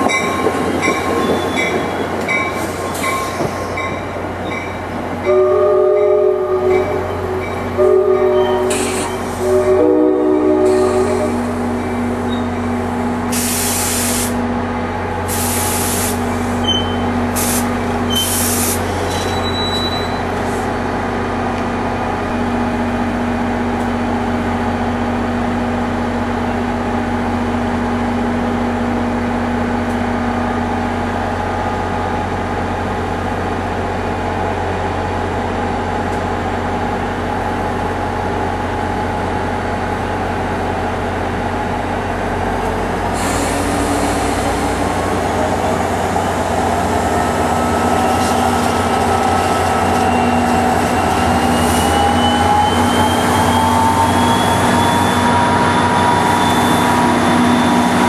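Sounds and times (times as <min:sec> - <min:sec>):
train humming: 0:00.0 - 0:58.0
hiss: 0:08.7 - 0:09.5, 0:13.3 - 0:14.4, 0:15.3 - 0:16.7, 0:17.3 - 0:19.2, 0:43.2 - 0:44.7
train whine rising in pitch: 0:43.4 - 0:58.0.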